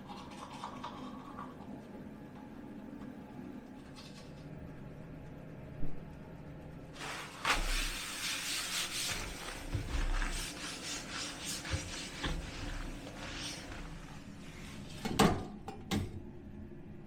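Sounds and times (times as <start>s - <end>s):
scratchy rubbing and rustling: 7.0s - 14.9s.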